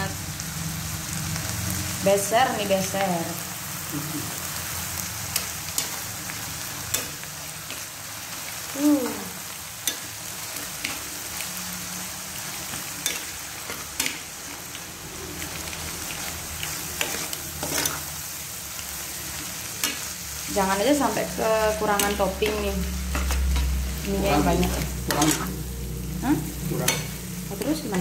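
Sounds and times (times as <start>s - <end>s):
food sizzling in a frying pan: 0.0s - 28.0s
metal spatula scraping a pan: 12.4s - 14.7s, 16.7s - 18.2s, 21.8s - 25.7s.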